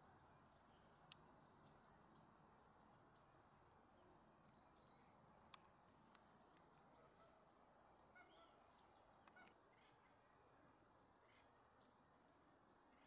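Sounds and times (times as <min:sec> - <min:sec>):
faint bird calls: 0:06.8 - 0:13.0.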